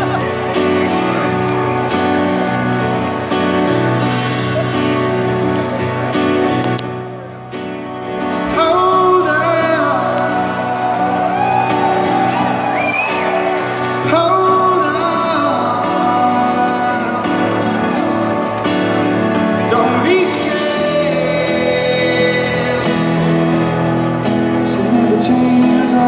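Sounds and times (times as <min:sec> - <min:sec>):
live band playing ballad: 0:00.0 - 0:26.0
man singing: 0:08.2 - 0:18.3, 0:19.3 - 0:26.0.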